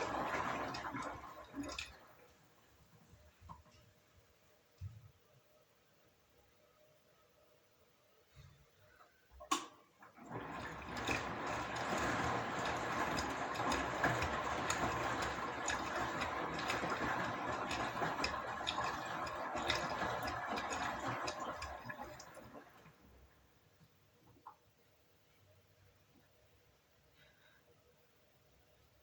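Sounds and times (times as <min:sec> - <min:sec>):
washing machine drum turning: 0:00.0 - 0:02.0, 0:09.4 - 0:22.9.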